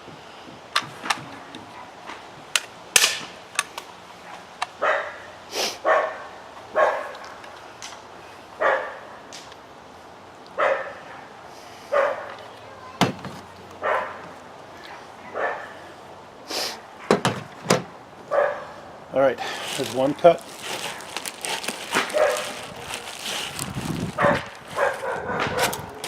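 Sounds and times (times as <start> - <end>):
dog barking: 4.2 - 7.2, 8.6 - 9.0, 10.6 - 11.3, 11.9 - 12.3, 13.8 - 14.2, 15.3 - 15.8, 18.3 - 18.8, 22.1 - 22.6, 24.2 - 26.0.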